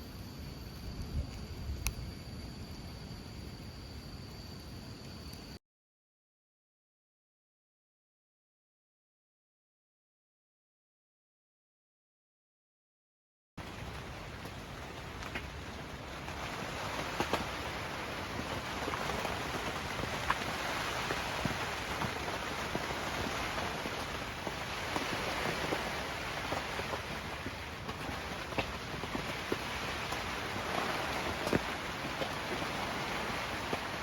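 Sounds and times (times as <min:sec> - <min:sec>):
close raindrop hits: 0:13.6 - 0:34.0
steady rain falling: 0:13.6 - 0:34.0.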